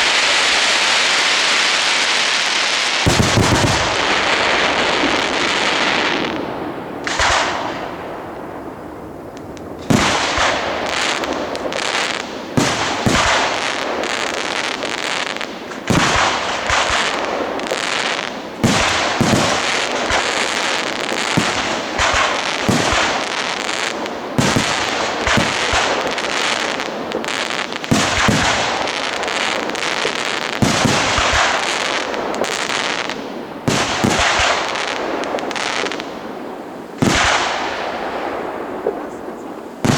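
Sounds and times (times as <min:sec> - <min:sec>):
dense steady noise: 0:36.2 - 0:39.9.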